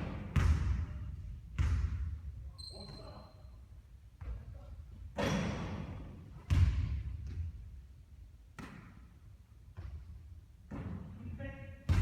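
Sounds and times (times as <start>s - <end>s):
basketball bouncing on court: 0.0s - 2.2s, 6.5s - 7.5s.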